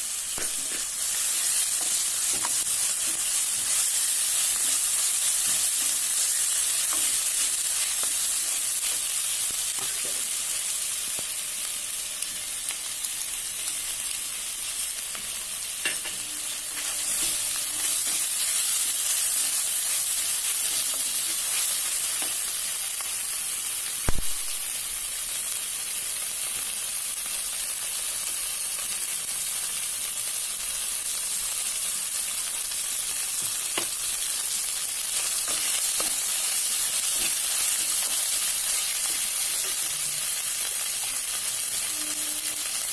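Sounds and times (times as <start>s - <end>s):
oil sizzling in pan: 0.0s - 42.9s
sharp knock: 24.1s - 24.4s.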